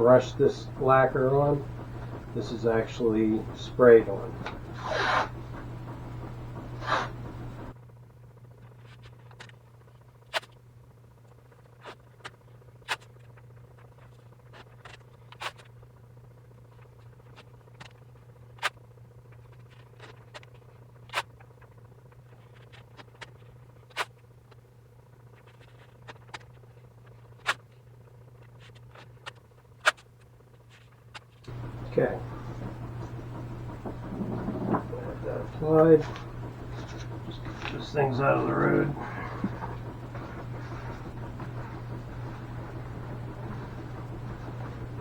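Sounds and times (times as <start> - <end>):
steady low hum: 0.0 - 7.8, 31.5 - 45.0
tape ticking and snapping: 0.7 - 7.7.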